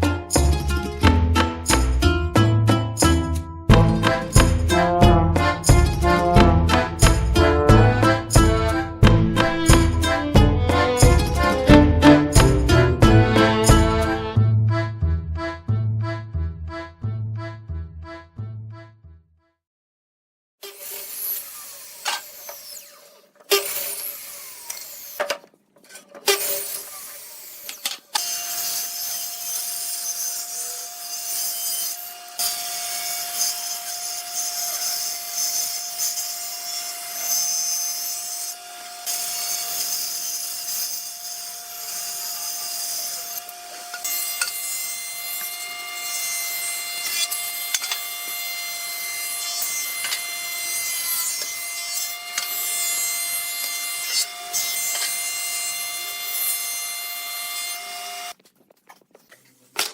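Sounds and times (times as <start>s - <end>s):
power tool whining on wood: 20.6s - 58.4s.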